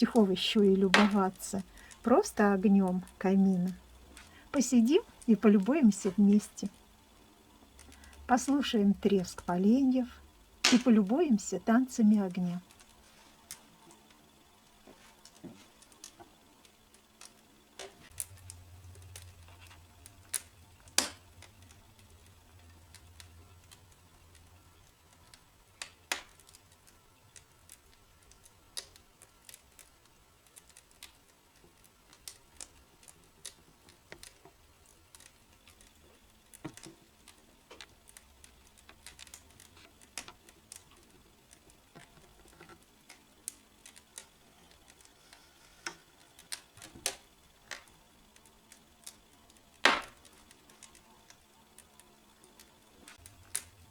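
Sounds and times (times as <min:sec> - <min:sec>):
fire popping and snapping: 0:00.0 - 0:53.9
logs crackling in fireplace: 0:00.0 - 0:53.9.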